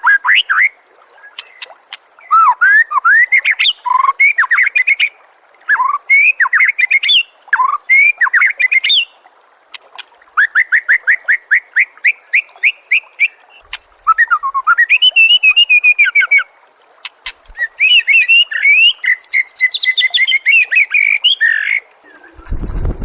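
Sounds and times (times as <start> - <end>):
bird singing whistled notes: 14.1 - 16.5, 17.6 - 22.5.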